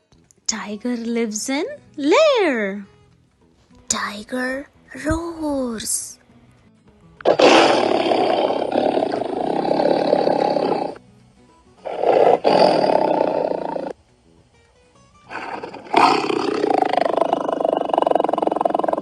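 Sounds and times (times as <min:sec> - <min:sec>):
tiger roaring: 0:07.2 - 0:11.0, 0:11.8 - 0:14.0, 0:15.3 - 0:19.0.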